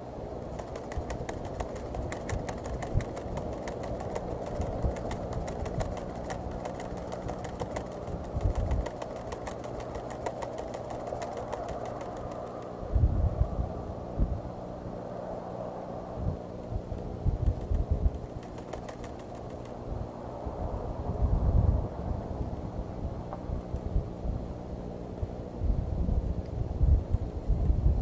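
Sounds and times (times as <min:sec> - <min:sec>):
low wind rumble: 0:00.0 - 0:28.0
dry corn husk rattling: 0:00.4 - 0:12.7, 0:17.4 - 0:19.8.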